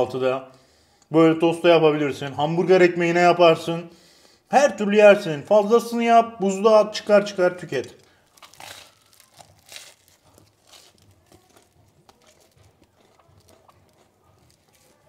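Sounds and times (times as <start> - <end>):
person chewing crispy bread: 7.9 - 15.0.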